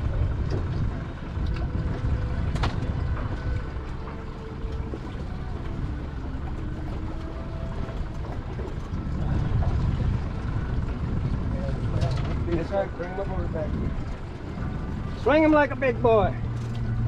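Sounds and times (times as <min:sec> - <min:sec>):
wind buffeting the microphone: 0:00.0 - 0:17.0.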